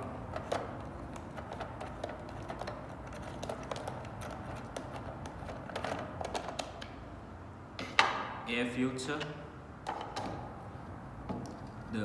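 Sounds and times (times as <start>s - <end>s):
plastic clicks and knocks: 0.3s - 7.0s.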